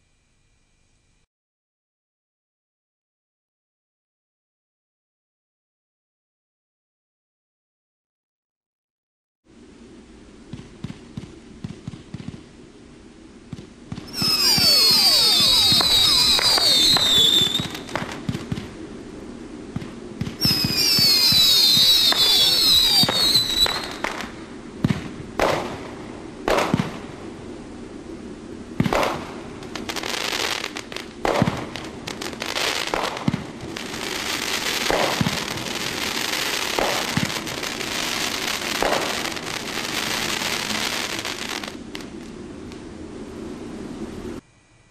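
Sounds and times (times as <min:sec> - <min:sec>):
firework bangs: 0:13.5 - 0:18.8, 0:19.7 - 0:27.3, 0:28.8 - 0:42.3
firework crackling: 0:13.5 - 0:27.8, 0:28.7 - 0:42.9
whistling fireworks: 0:13.5 - 0:42.9.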